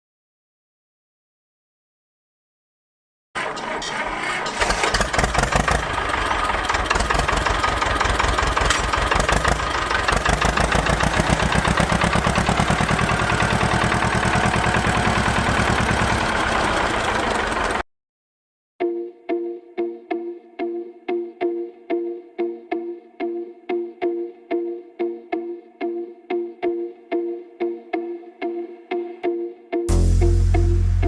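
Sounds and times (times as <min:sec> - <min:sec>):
small tractor engine running: 0:03.4 - 0:17.8.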